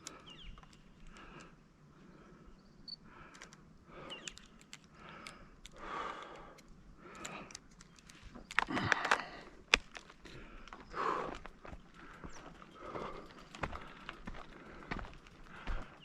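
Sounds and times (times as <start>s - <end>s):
person breathing heavily: 0.0s - 7.7s, 8.5s - 16.0s
footsteps crunching on gravel: 9.7s - 16.0s.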